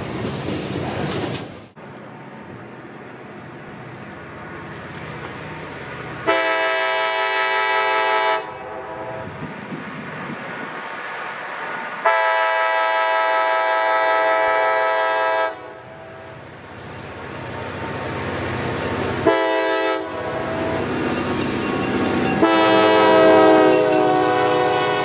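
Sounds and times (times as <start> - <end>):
passing train rumble: 0.0 - 25.0
locomotive air horn blasts: 6.2 - 9.4, 12.0 - 16.4, 19.2 - 20.8, 22.4 - 25.0.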